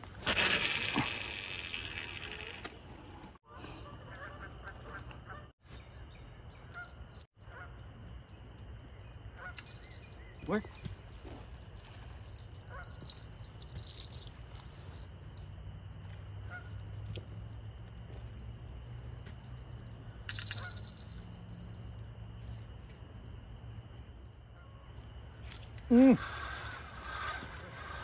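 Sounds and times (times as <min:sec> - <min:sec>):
birds chirping and trilling: 0:03.6 - 0:18.6.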